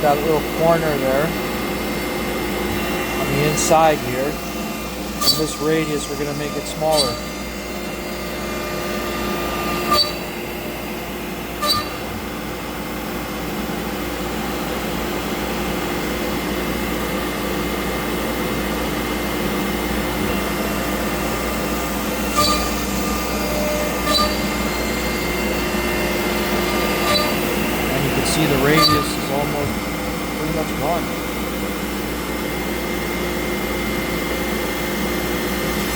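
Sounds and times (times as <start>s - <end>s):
router spindle milling: 2.6s - 10.2s, 20.1s - 31.3s.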